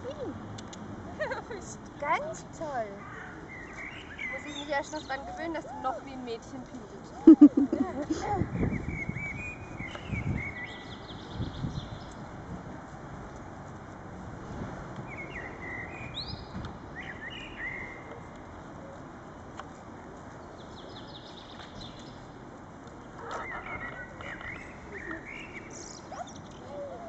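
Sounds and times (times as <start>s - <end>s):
songbird chirping: 2.0s - 7.6s, 8.6s - 12.2s, 15.0s - 18.4s, 20.2s - 27.0s.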